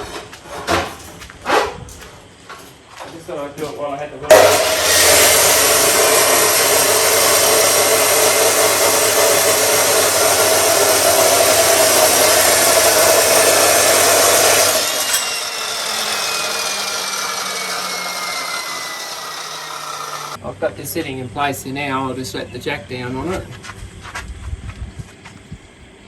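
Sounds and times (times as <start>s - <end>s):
angle grinder grinding steel: 4.3s - 20.4s
grinder disc winding down whine: 8.6s - 20.4s.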